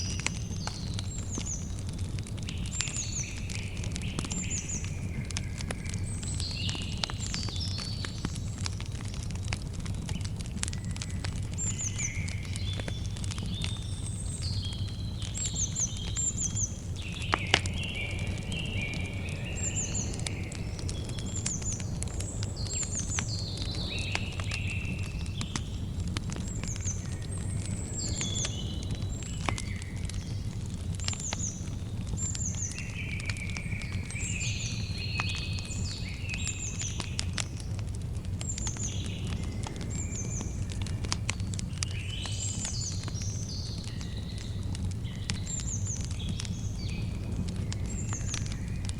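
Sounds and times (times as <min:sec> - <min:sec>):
campfire crackling and popping: 0:00.0 - 0:48.9
small birds chirping: 0:00.0 - 0:48.9
low rumble: 0:16.7 - 0:30.4.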